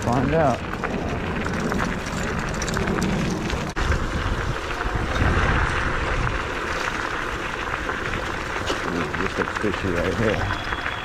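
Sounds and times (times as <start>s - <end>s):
wind rushing over microphone: 0.0s - 6.8s
electric scooter rumble: 0.0s - 11.0s.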